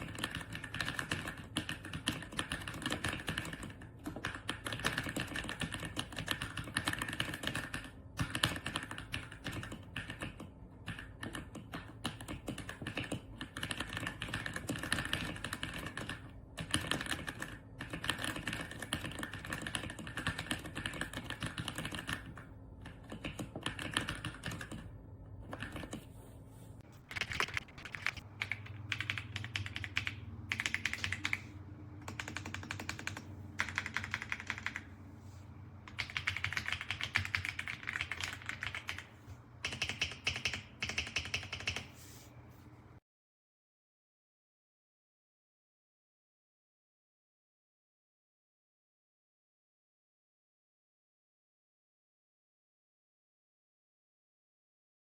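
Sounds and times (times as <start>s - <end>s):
mechanical keyboard typing: 0.0s - 26.1s, 27.0s - 34.9s, 35.9s - 42.0s.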